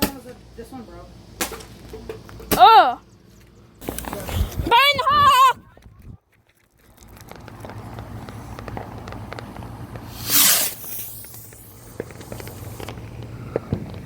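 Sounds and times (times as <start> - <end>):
firework crackling pops: 7.3 - 14.0
loud hissing whoosh: 10.0 - 13.2.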